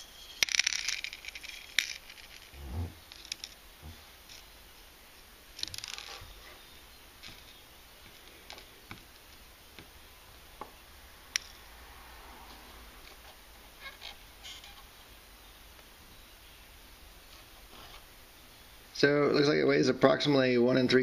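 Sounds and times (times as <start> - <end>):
metal fragments clicking and rattling: 0.0 - 4.5, 5.6 - 9.9.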